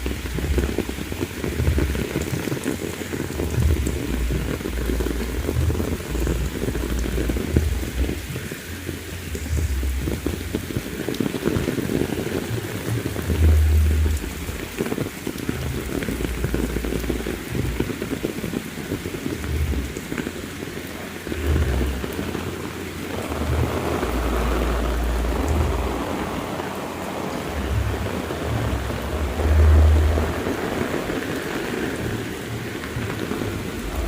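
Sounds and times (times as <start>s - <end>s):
heavy rain falling: 0.0s - 34.0s
low rumbles of thunder: 3.4s - 8.5s, 21.3s - 34.0s.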